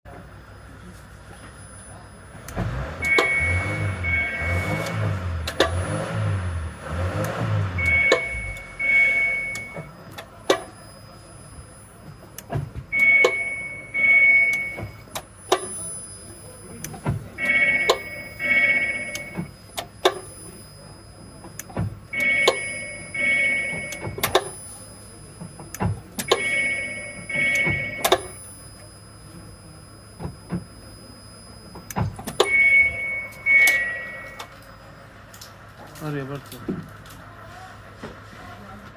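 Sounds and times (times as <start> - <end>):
short high tones: 12.9 - 35.0.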